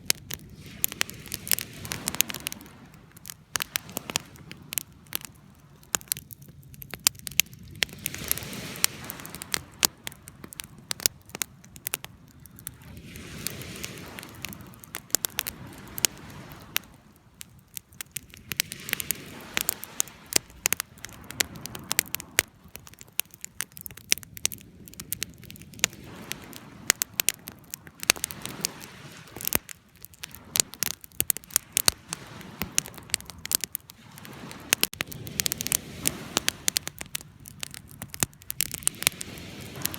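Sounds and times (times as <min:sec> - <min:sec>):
campfire crackling and popping: 0:00.0 - 0:39.9
soft fire hiss: 0:00.0 - 0:39.9.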